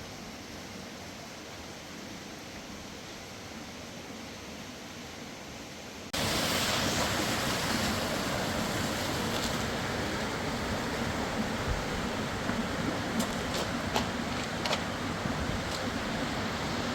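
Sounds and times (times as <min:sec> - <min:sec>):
river water rushing: 0:06.2 - 0:16.9.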